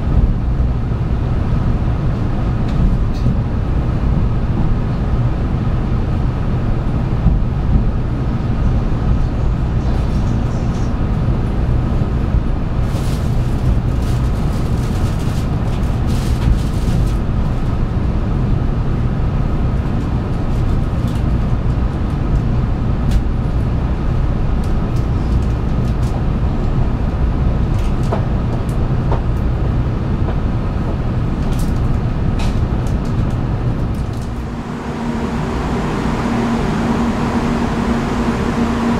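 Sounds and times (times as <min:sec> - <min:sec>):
train rumble and hum: 0:00.0 - 0:38.9.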